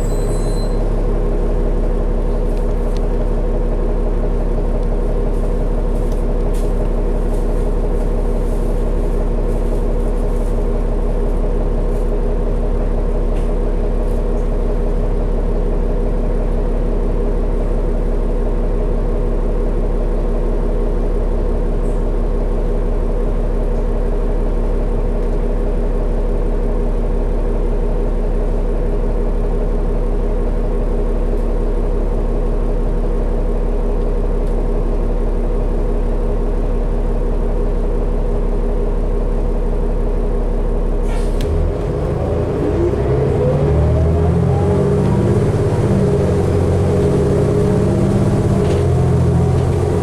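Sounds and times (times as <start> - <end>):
bus diesel engine idling: 0.0 - 50.0.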